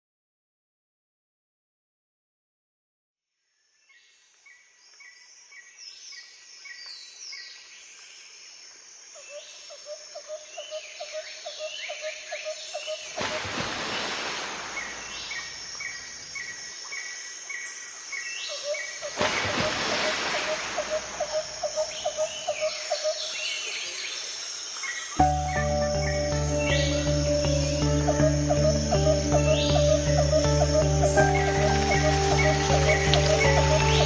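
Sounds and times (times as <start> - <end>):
birds chirping and calling: 18.1 - 24.0, 24.8 - 34.0
rapid pulsing bird call: 18.5 - 23.7, 25.2 - 34.0.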